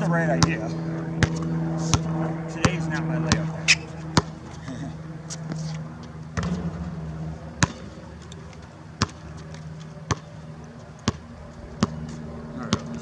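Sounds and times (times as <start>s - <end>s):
faint low hum: 0.0s - 13.0s
basketball bouncing: 1.2s - 4.4s, 6.4s - 13.0s.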